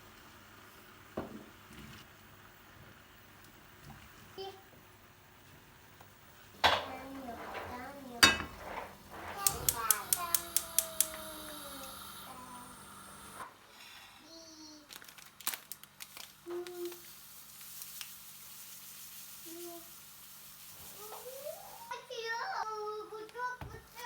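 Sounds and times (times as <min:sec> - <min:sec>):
tableware clinking: 0:07.5 - 0:08.9.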